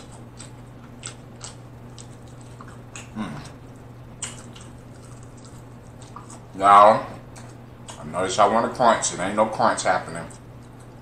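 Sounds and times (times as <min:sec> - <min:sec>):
soft chewing with lip smacks: 0:00.0 - 0:06.5
person humming briefly: 0:03.1 - 0:03.6.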